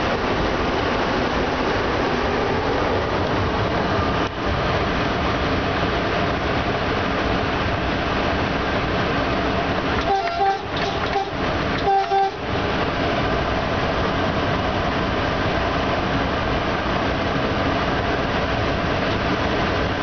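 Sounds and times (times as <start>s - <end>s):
locomotive rumble: 0.0s - 20.0s
train horn blasts: 10.0s - 12.5s.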